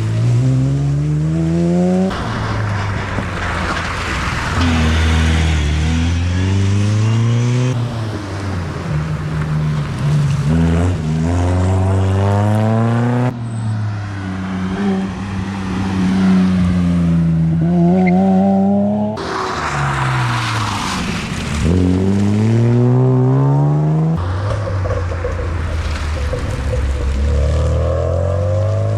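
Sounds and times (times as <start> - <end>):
rally car engines revving: 0.0 - 28.9.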